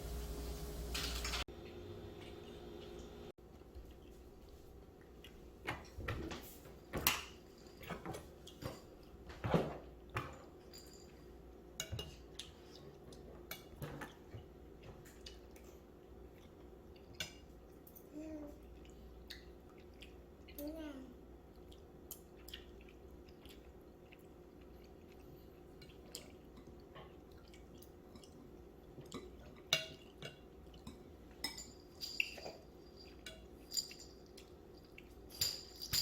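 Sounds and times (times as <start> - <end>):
cutlery and dishes clinking: 0.9 - 1.4, 5.7 - 15.7, 29.0 - 36.0.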